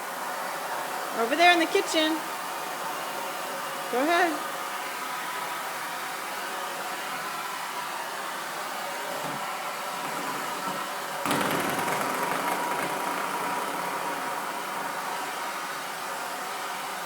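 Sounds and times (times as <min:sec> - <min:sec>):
vacuum cleaner running: 0:06.4 - 0:17.0.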